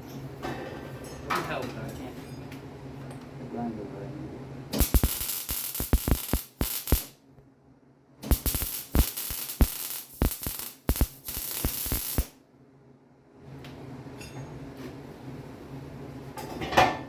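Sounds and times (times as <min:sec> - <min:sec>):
steady low hum: 0:02.0 - 0:13.4
welding arc crackling: 0:04.8 - 0:07.2, 0:08.3 - 0:12.4.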